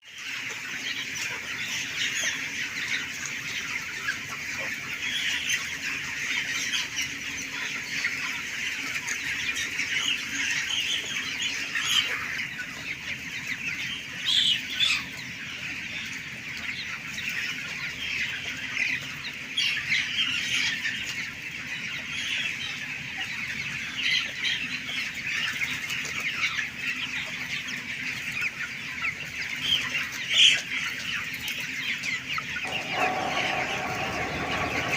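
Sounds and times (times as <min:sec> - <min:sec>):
chickens cheeping: 0:00.1 - 0:34.9
steady low hum: 0:32.6 - 0:34.9.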